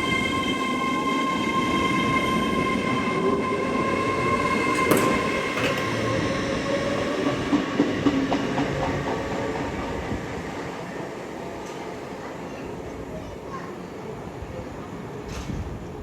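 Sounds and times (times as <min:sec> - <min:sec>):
train wheels rumbling: 0:00.0 - 0:11.9
train high whine: 0:00.0 - 0:13.3.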